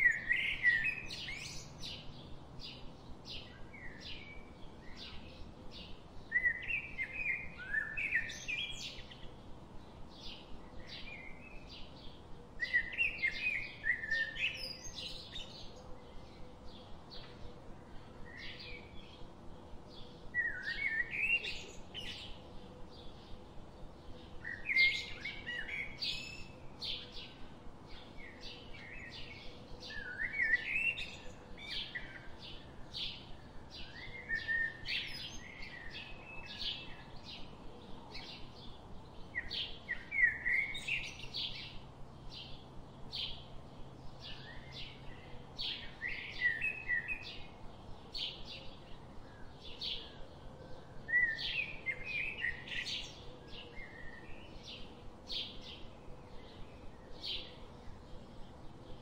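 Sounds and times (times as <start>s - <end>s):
birds chirping and singing: 0.0s - 59.0s.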